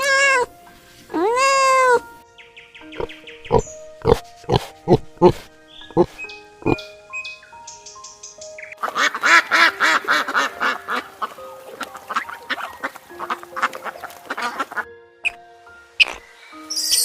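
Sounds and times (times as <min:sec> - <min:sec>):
ducks quacking: 0:08.8 - 0:15.4.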